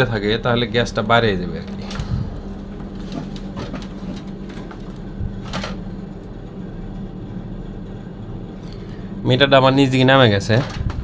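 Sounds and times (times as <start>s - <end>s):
vacuum pump humming: 0.0s - 11.0s.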